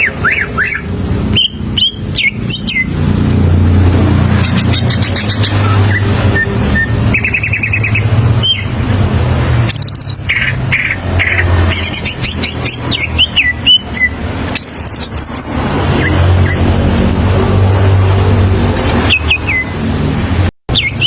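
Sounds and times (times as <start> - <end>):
bird singing trills and whistles: 0.0 - 3.0, 4.3 - 8.8, 9.6 - 16.7, 19.1 - 19.8, 20.7 - 21.0.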